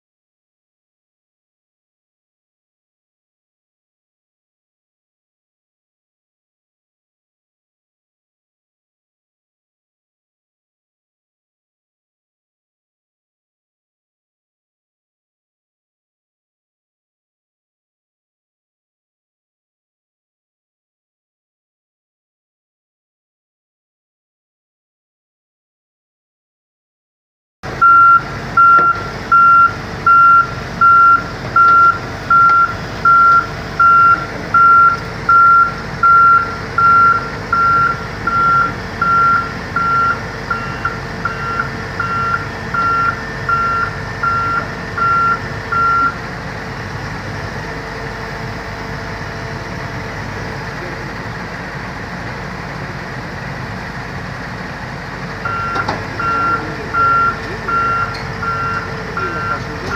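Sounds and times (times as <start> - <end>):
diesel engine running: 27.6 - 59.9
backup alarm beeping: 27.8 - 46.2, 55.4 - 59.9.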